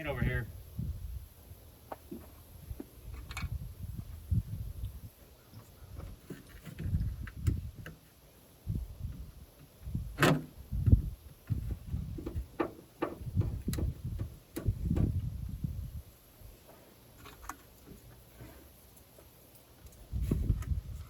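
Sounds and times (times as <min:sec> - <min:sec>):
dull thumps: 0:10.2 - 0:15.3.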